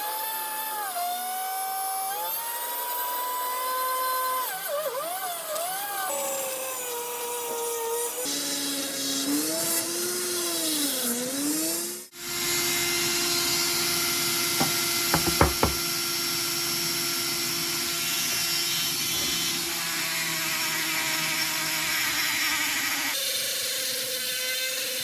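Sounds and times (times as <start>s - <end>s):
electric power tool running: 11.7s - 23.1s.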